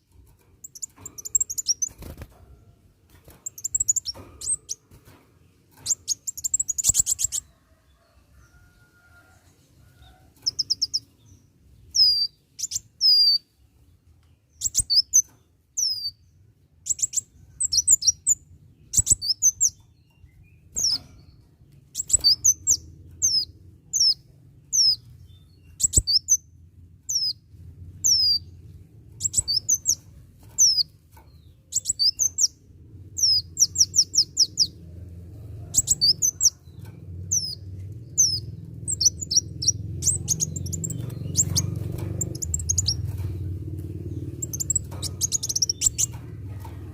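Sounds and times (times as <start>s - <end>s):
sunbird chirping: 10.4s - 13.5s, 21.9s - 26.5s, 31.7s - 34.8s, 37.3s - 46.3s
low hum: 17.9s - 46.9s.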